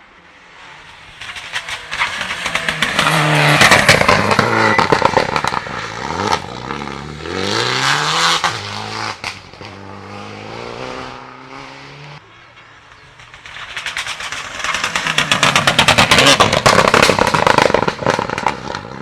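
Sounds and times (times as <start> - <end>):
rally car engine at high revs: 0.6 - 12.3, 13.8 - 19.0
sharp exhaust cracks: 0.9 - 9.8, 13.0 - 19.0.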